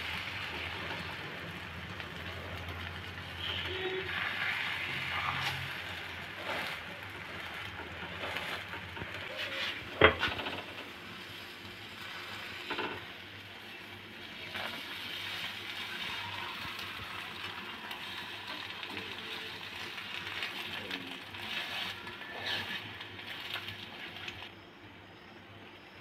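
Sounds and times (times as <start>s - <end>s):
flatbread sizzling on griddle: 0.0s - 24.8s
metal spatula scraping griddle: 3.2s - 10.8s, 18.9s - 24.3s.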